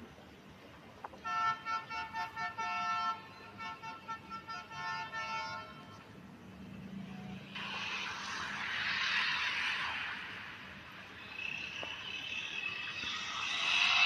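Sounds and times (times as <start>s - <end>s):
train horn toots: 1.2s - 6.1s.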